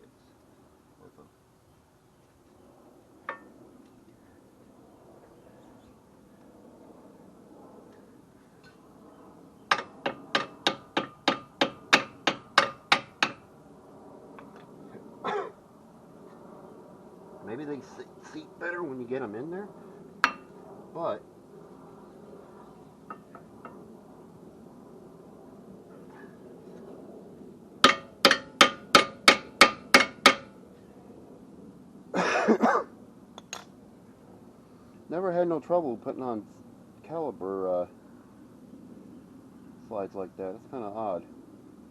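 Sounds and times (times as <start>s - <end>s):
hammer striking metal: 9.7s - 13.4s, 20.2s - 20.5s, 27.8s - 30.5s.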